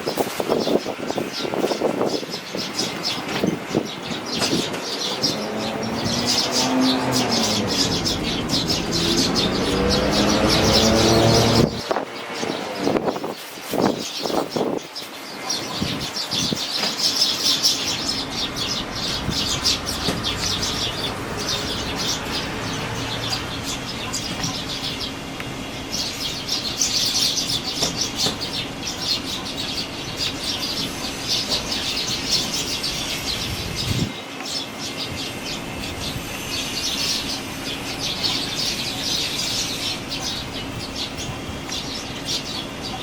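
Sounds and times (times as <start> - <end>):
strong wind rushing: 0.0 - 14.8, 33.4 - 34.2
fledgling sparrows chirping: 0.0 - 43.0.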